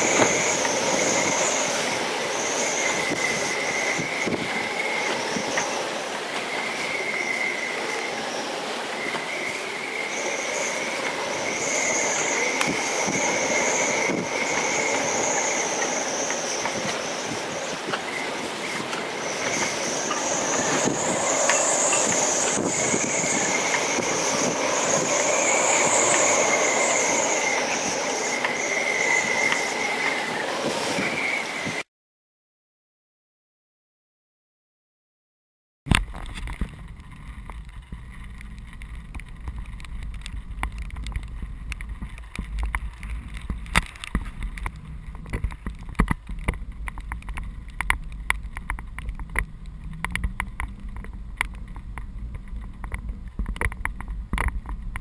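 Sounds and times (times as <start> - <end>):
high wavering wind whistle: 0.0 - 31.9
storm wind rushing: 0.0 - 31.9.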